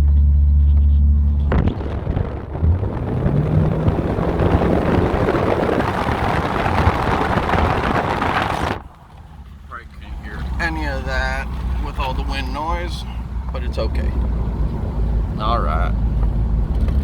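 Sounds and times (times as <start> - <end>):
wind noise on microphone: 0.0 - 9.0
car exhaust droning: 0.0 - 17.0.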